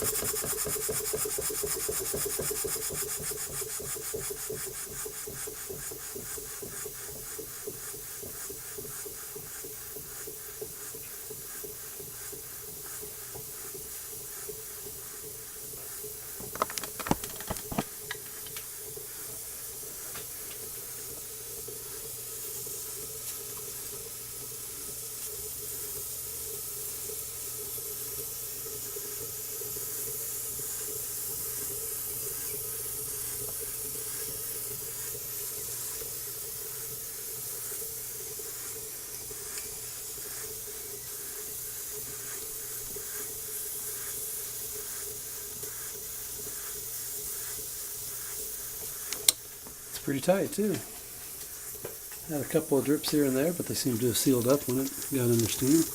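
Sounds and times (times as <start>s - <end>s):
steam engine beating: 0.0s - 14.0s
steam hissing: 0.0s - 55.9s.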